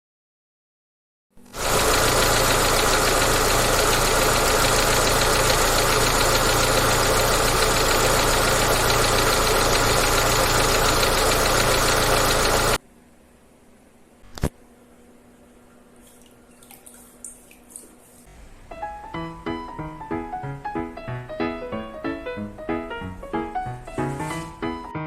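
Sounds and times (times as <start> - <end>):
engine running steadily: 1.4 - 12.8.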